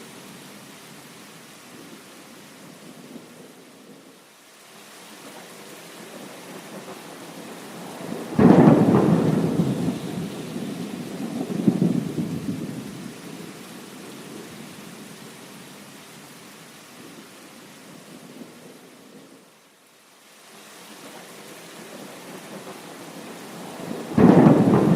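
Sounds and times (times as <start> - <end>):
steady rain: 0.0 - 24.9
thunder rumbling: 7.7 - 13.2, 22.6 - 24.9.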